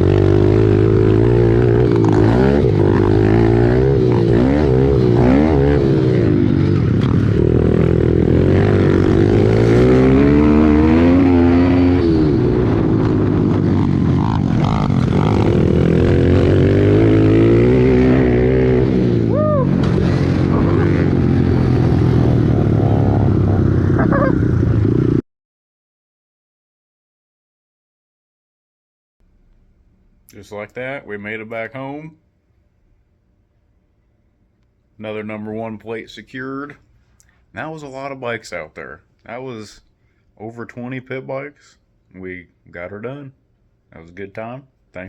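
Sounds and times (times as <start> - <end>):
pit bike engines revving: 0.0 - 25.2.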